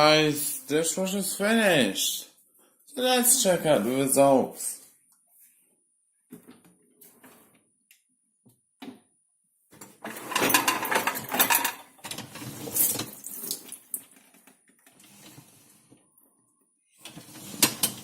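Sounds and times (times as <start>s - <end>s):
dish rack rattling and clattering: 10.1s - 12.4s.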